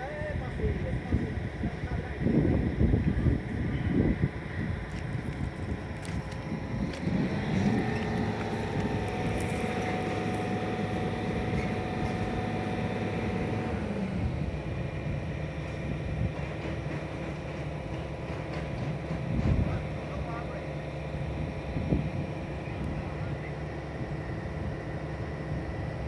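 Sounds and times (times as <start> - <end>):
diesel engine revving: 5.8 - 26.0.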